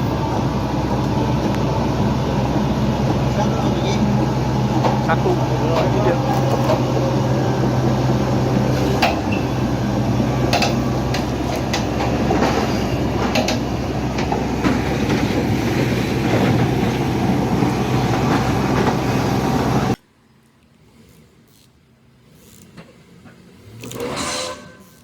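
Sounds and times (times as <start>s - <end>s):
heavy vehicle rumbling: 0.0s - 20.0s
low hum: 0.0s - 20.0s
clanks and knocks: 10.5s - 17.0s.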